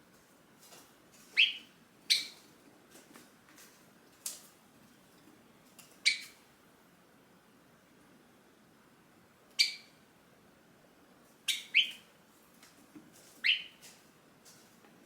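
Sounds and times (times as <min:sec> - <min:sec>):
sparrow chirping: 0:01.4 - 0:02.4, 0:06.0 - 0:06.4, 0:09.6 - 0:09.9, 0:11.5 - 0:12.1, 0:13.4 - 0:13.8.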